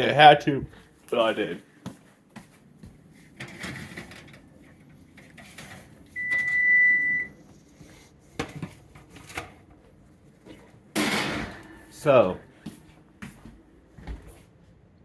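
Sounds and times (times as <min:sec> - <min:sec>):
electronic appliance beep: 0:06.2 - 0:07.4.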